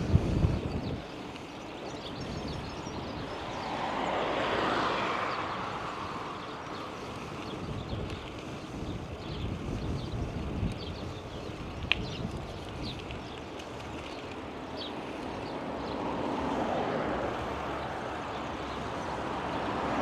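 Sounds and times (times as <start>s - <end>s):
vehicle passing by: 2.1s - 8.6s, 13.9s - 20.0s.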